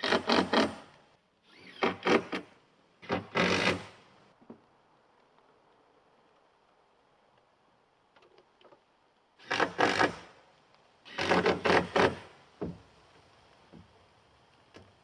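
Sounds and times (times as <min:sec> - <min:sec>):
power tool cutting wood: 0:11.1 - 0:12.3.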